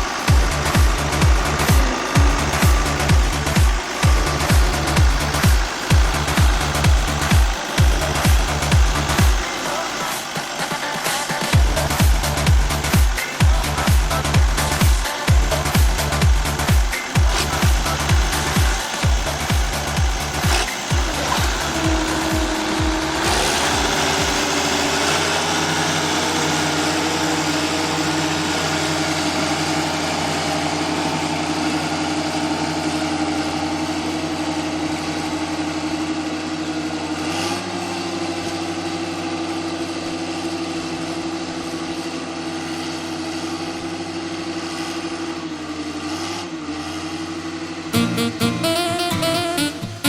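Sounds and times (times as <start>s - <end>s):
tractor engine idling: 0.0s - 46.1s.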